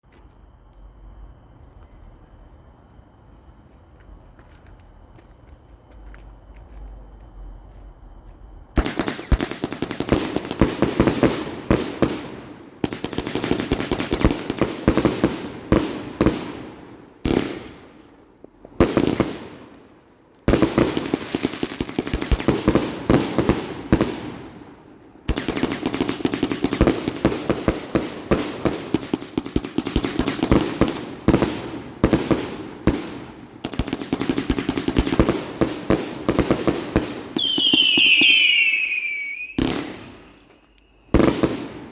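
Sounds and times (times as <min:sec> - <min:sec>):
whistling firework shots: 0:08.8 - 0:18.2, 0:25.3 - 0:41.9.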